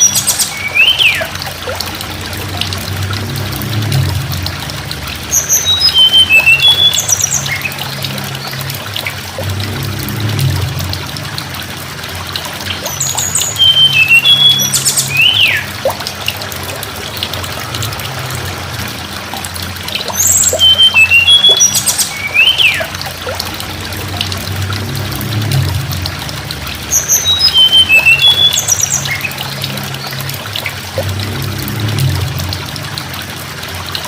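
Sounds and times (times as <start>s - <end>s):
bird song whistles and clicks: 0.0s - 1.8s, 5.5s - 7.9s, 12.8s - 16.0s, 19.9s - 23.4s, 27.0s - 29.4s
trickle of running water: 0.0s - 34.0s.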